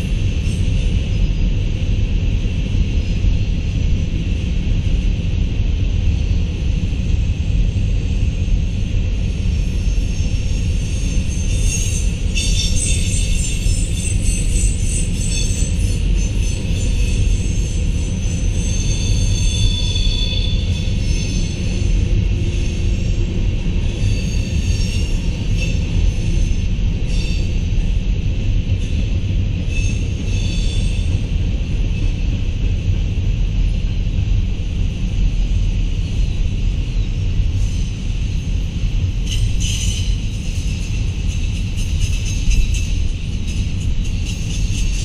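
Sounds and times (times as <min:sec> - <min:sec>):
train wheels rumbling on rails: 0:00.0 - 0:45.0.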